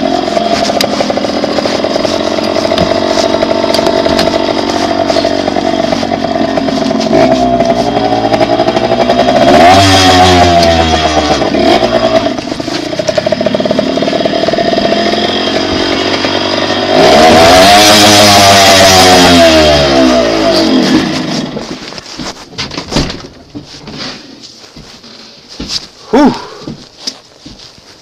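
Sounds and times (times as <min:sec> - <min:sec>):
dirt bike engine revving: 0:00.0 - 0:21.8.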